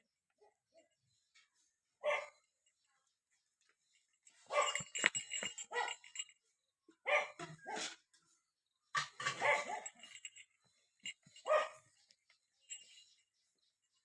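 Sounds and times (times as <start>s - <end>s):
dog barking: 2.0s - 2.4s, 4.5s - 4.9s, 5.7s - 6.0s, 7.0s - 8.0s, 9.2s - 10.1s, 11.4s - 11.9s.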